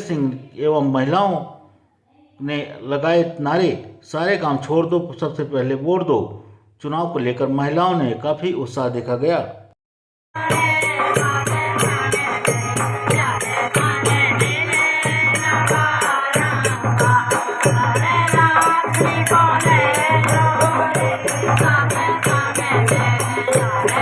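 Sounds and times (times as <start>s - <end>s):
rattling percussion: 10.4s - 24.0s
women singing: 10.4s - 24.0s.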